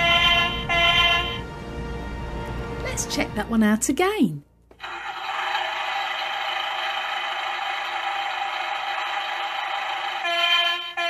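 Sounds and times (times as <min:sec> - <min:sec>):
toy engine-like buzz: 0:00.0 - 0:01.4, 0:04.8 - 0:11.0
toy horn-like tone: 0:00.0 - 0:01.4, 0:09.1 - 0:11.0.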